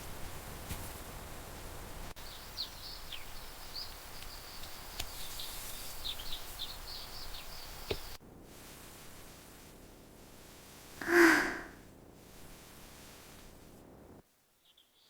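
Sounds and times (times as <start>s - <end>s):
steady background hiss: 0.0s - 15.0s
small birds chirping: 1.0s - 8.2s, 11.0s - 11.8s
faint clicks: 4.1s - 5.3s.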